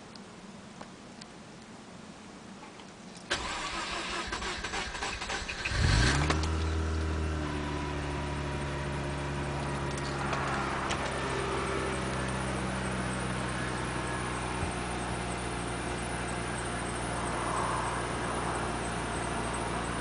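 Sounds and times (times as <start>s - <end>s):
engine starter cranking: 3.3s - 6.8s
car engine idling: 3.3s - 20.0s.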